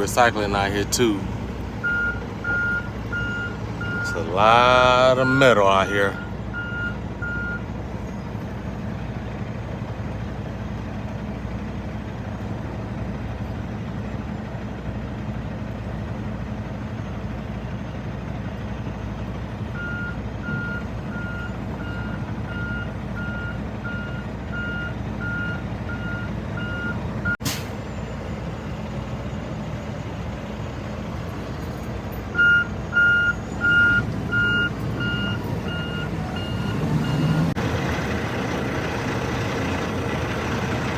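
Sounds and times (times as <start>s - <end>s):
diesel truck engine idling: 0.0s - 40.9s
reversing alarm beeping: 1.8s - 7.7s, 19.8s - 30.2s, 31.7s - 40.9s.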